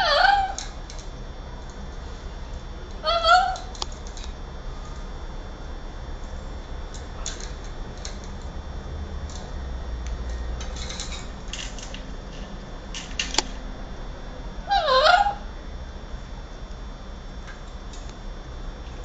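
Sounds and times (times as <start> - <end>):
parrot call: 0.0 - 0.7, 3.0 - 3.8, 14.6 - 15.5.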